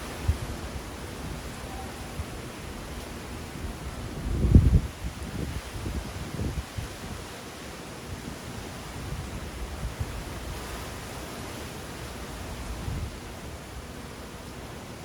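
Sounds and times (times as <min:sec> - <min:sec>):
wind buffeting microphone: 0:00.0 - 0:07.4, 0:08.0 - 0:11.1, 0:12.4 - 0:14.0
strong wind rushing: 0:03.6 - 0:07.2.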